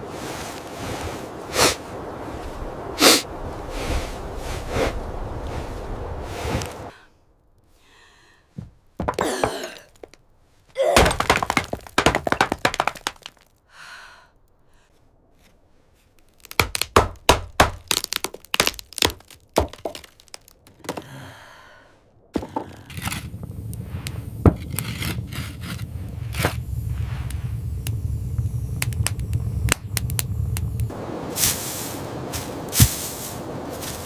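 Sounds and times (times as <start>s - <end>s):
heavy thuds and cracking impacts: 8.6s - 10.2s, 10.8s - 13.5s, 16.2s - 21.2s.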